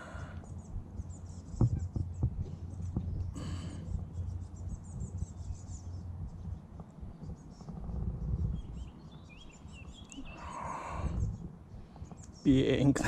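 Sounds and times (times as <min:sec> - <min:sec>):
low microphone rumble: 0:00.0 - 0:13.0
small birds chirping: 0:00.0 - 0:13.0.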